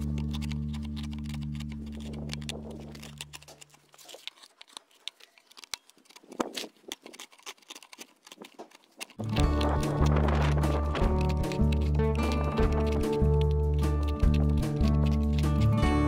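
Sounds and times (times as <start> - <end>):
hand gouge cutting wood: 0.0 - 16.0
background music: 9.2 - 16.0.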